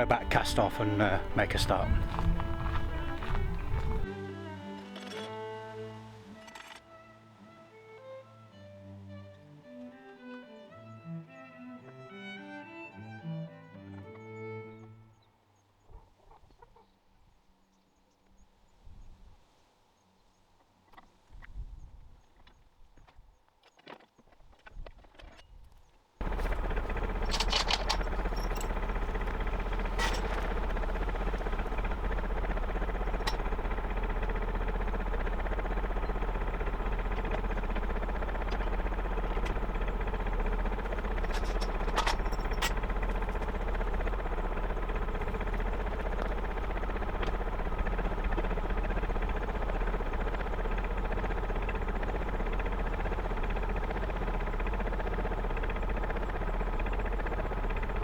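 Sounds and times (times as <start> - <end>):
diesel engine knocking steadily: 0.0 - 4.1, 26.2 - 58.0
sharp clicks: 26.2 - 58.0.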